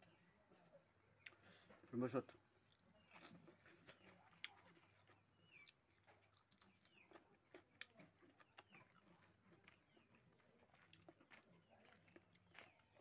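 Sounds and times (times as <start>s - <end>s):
person chewing: 1.2s - 13.0s.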